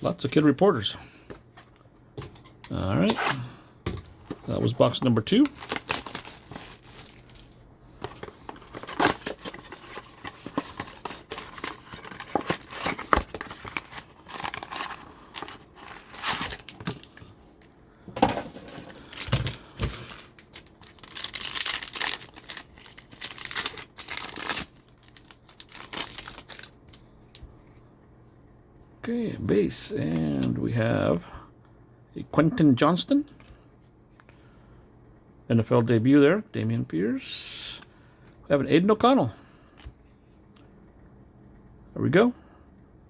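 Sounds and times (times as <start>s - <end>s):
packaging torn and crumpled: 5.4s - 7.6s, 8.2s - 17.2s, 18.9s - 27.0s.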